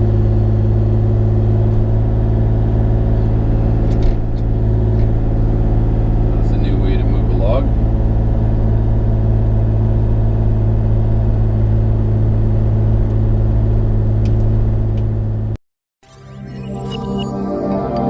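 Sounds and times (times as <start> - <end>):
soft music: 16.0 - 18.0.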